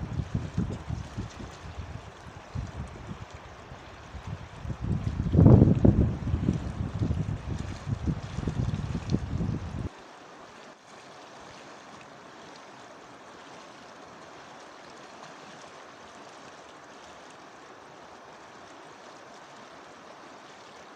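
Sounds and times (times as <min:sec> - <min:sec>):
wind buffeting microphone: 0:00.0 - 0:09.9
river water rushing: 0:00.0 - 0:20.9.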